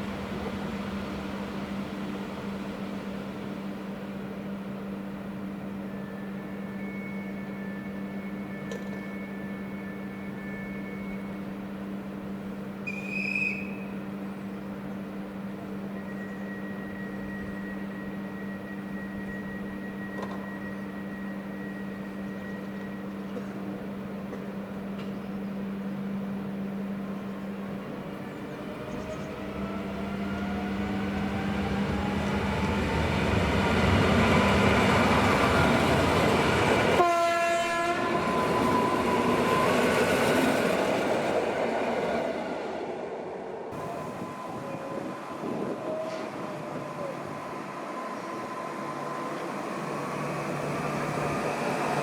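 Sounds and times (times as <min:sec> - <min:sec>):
train passing with rising whine: 0:00.0 - 0:12.9, 0:14.0 - 0:52.0
train horn blast: 0:36.9 - 0:38.5.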